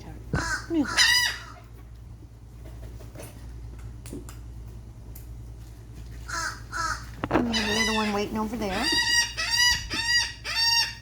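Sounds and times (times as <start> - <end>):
low steady background hum: 0.0 - 11.0
seagulls calling: 6.3 - 11.0.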